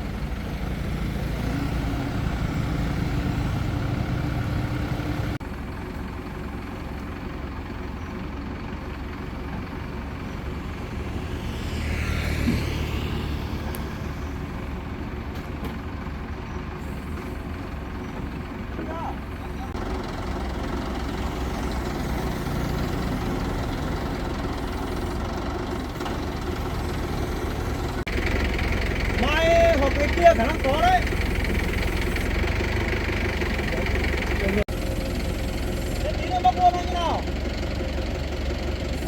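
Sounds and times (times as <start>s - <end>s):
crane engine droning: 0.0s - 39.0s.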